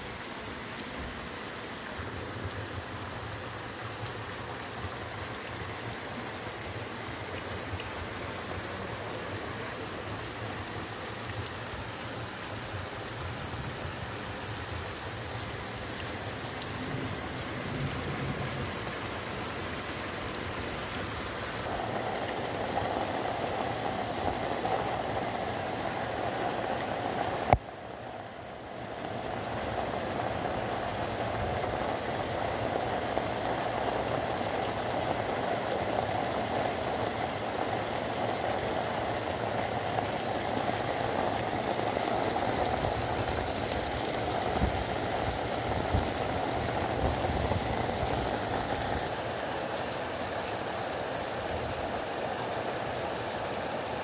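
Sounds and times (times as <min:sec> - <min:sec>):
floodwater rushing: 0:00.0 - 0:54.0
heavy rain pouring: 0:00.0 - 0:54.0.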